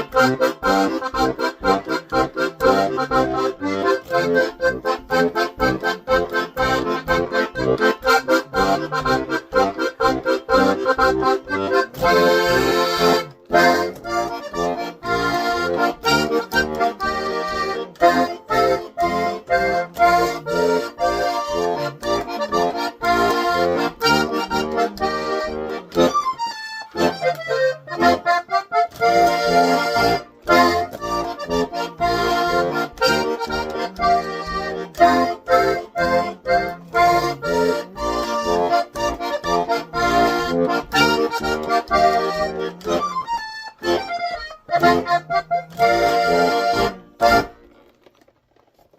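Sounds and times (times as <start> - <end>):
accordion polka tune: 0.0 - 48.3.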